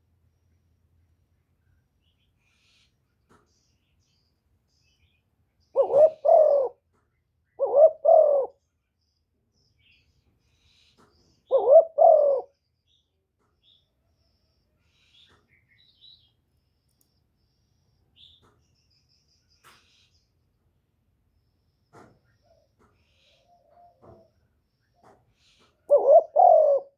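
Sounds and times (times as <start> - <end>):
small birds chirping: 0.2 - 26.9
dove cooing: 5.8 - 6.8, 7.6 - 8.6, 11.5 - 12.5, 22.4 - 24.4, 25.9 - 26.9.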